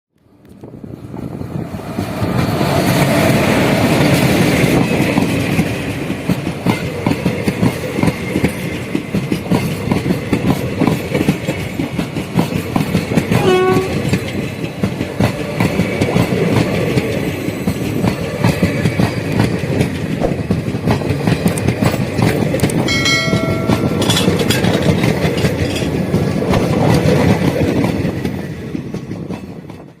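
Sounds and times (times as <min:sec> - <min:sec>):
train wheels rumbling on rails: 0:00.2 - 0:30.0
wheels clacking over rail joints: 0:02.4 - 0:30.0
brief pitched tones: 0:13.4 - 0:14.0.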